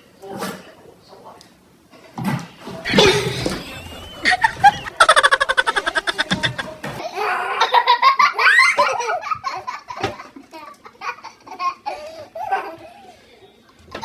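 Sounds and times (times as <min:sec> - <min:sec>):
people laughing: 0:02.9 - 0:07.0.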